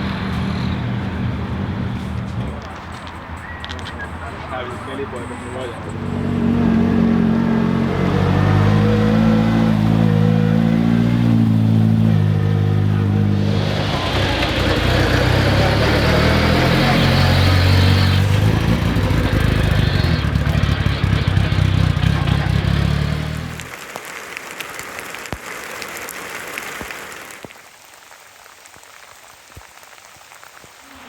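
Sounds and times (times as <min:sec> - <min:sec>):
tyre and road noise: 0:00.0 - 0:27.9
rally car engine at high revs: 0:05.9 - 0:23.7.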